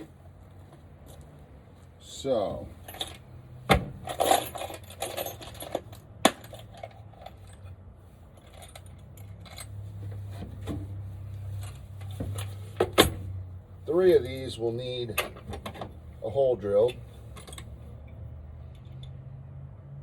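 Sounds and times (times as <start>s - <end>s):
metal hardware clinking: 2.8s - 3.2s, 3.8s - 7.7s, 16.8s - 17.8s.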